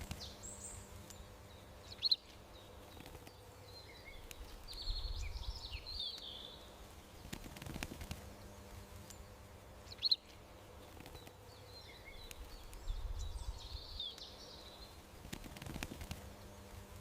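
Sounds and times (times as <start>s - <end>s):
faint outdoor background noise: 0.0s - 17.0s
songbird chirp: 0.0s - 17.0s
songbirds twittering: 0.0s - 17.0s.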